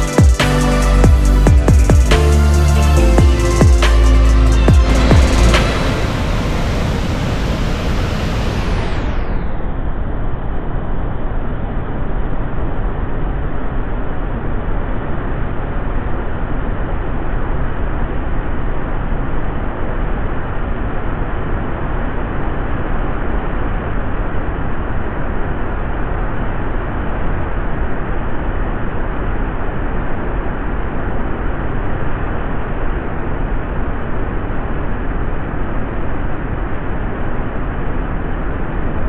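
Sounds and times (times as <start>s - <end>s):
muffled rushing noise with deep rumble: 4.6s - 10.5s.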